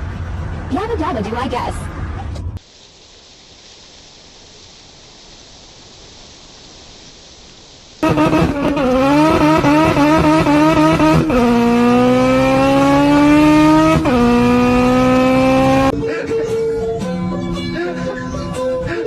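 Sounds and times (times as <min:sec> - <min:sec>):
car engine revving: 0:08.0 - 0:15.9
music: 0:15.9 - 0:19.0.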